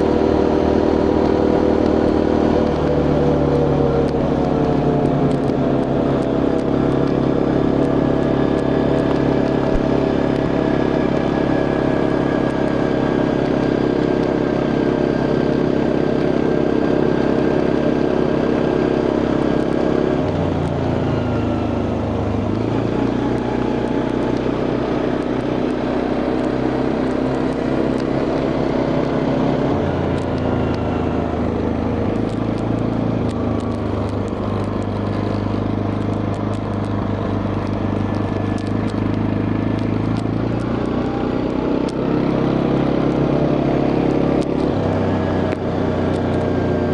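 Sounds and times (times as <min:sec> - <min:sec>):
quad bike engine running: 0:00.0 - 0:46.9.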